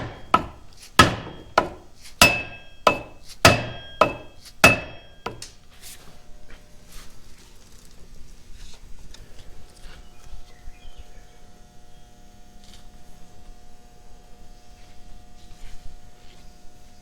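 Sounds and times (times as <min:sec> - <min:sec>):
hand tools and metal parts clinking: 0:00.0 - 0:05.5.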